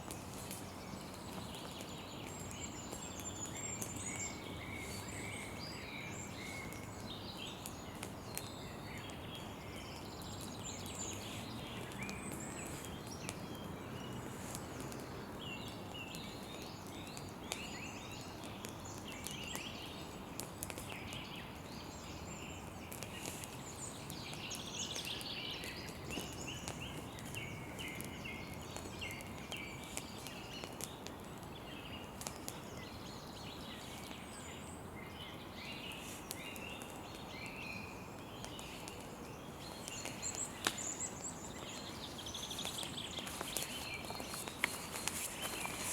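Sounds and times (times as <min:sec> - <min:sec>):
campfire crackling and popping: 0:00.0 - 0:34.4, 0:35.1 - 0:45.9
birds chirping: 0:31.6 - 0:45.9.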